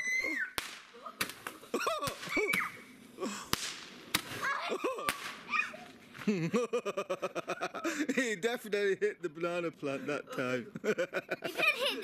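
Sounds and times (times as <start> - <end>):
firework hiss: 0.0 - 6.2
firework sharp cracks: 0.4 - 5.7.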